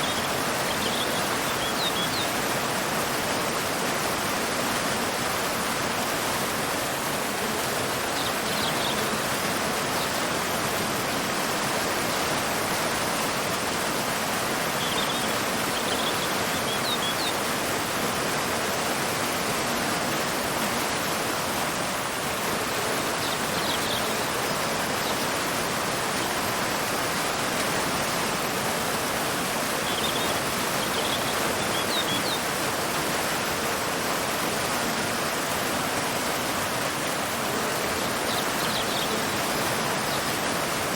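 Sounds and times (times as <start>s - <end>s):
bird chirping: 0.0s - 2.3s, 14.8s - 17.5s, 29.8s - 32.4s, 38.3s - 40.3s
waterfall rushing: 0.0s - 40.9s.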